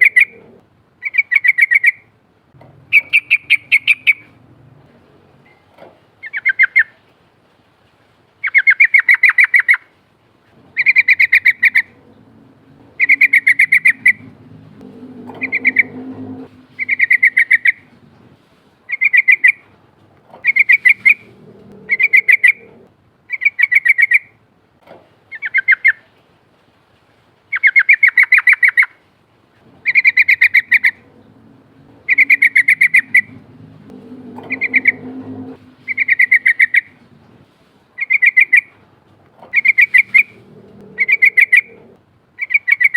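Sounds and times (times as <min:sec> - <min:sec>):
bird singing rolling song: 0:02.8 - 0:04.4, 0:10.7 - 0:18.3, 0:20.4 - 0:24.3, 0:29.8 - 0:37.3, 0:38.0 - 0:38.7, 0:39.5 - 0:42.9.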